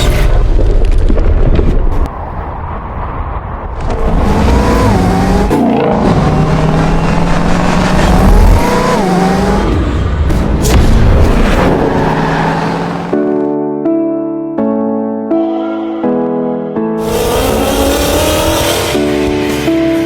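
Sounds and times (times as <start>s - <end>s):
car engine accelerating hard: 3.8s - 13.2s, 17.0s - 19.3s.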